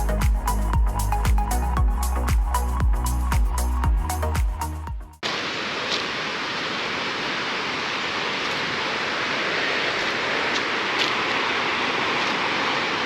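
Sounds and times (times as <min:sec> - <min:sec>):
flowing water rushing: 0:05.2 - 0:13.0.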